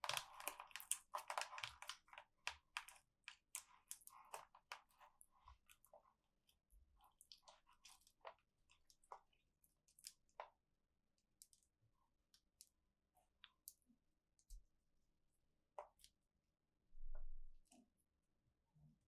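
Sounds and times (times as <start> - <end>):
plastic packaging crackling: 0.0 - 2.2.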